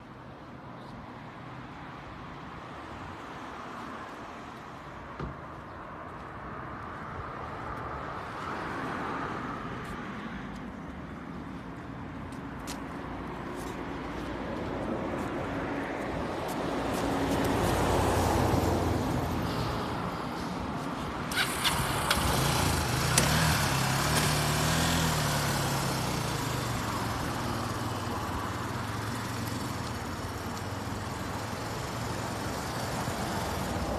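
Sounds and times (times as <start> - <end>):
motorcycle engine revving: 21.3 - 33.9.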